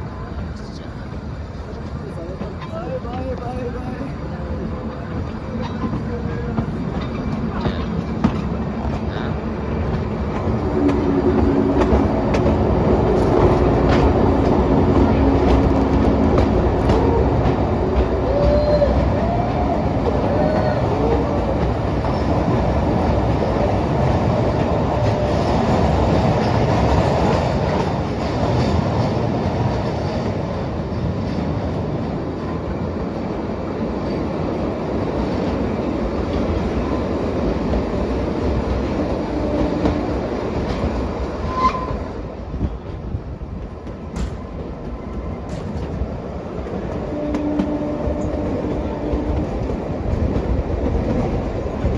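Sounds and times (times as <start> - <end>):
train wheels rumbling on rails: 0.0 - 51.9
wheel squeals: 41.4 - 42.1.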